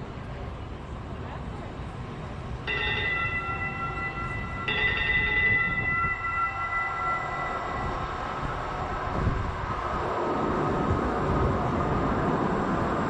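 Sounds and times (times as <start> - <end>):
train rumble: 0.0 - 13.0
train warning bell ringing: 2.6 - 9.6.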